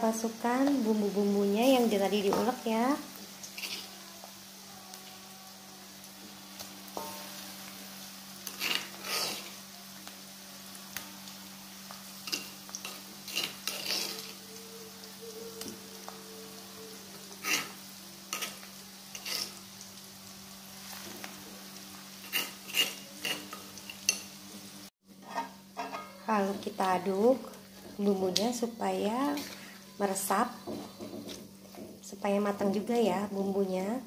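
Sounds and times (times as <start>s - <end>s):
spice paste sizzling in oil: 0.0s - 34.0s
metal spatula scraping wok: 3.4s - 4.0s, 7.0s - 7.4s, 8.4s - 9.6s, 12.2s - 14.4s, 17.4s - 19.6s, 22.2s - 24.2s, 25.2s - 26.8s, 29.2s - 31.9s.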